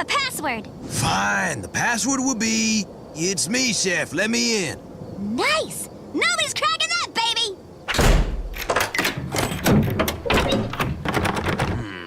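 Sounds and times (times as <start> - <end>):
rapid knocks and clicks: 7.9 - 11.8.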